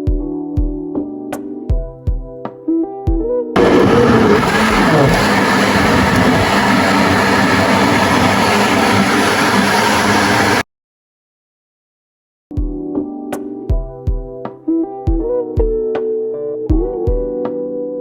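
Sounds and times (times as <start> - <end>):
loud mechanical running noise: 3.6 - 10.6.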